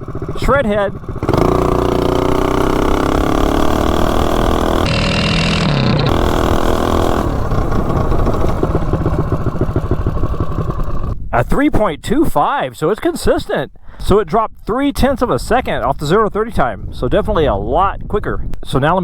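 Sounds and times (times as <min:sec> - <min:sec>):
mini bike engine accelerating: 0:00.0 - 0:11.2.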